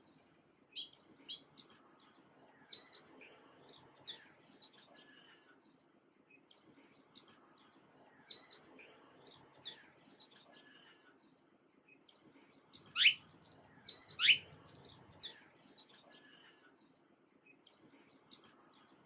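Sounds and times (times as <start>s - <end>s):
small birds chirping: 12.7s - 16.2s
loud sweeping bird calls: 13.0s - 13.2s, 14.2s - 14.4s.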